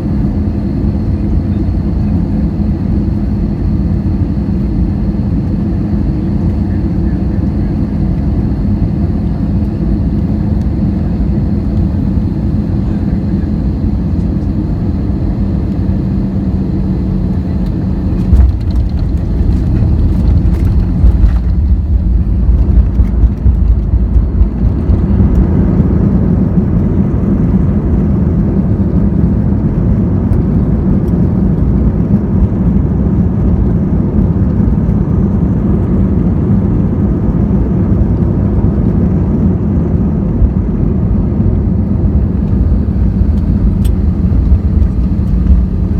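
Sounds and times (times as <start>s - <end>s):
aircraft engine and airflow drone: 0.0s - 45.9s
rough rumbling with rattles: 13.7s - 36.0s, 41.1s - 45.9s
faint high whine: 41.9s - 45.9s.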